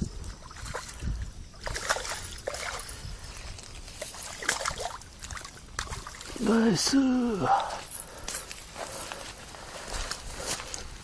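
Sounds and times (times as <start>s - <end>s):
fish splashing at surface: 4.0s - 6.4s.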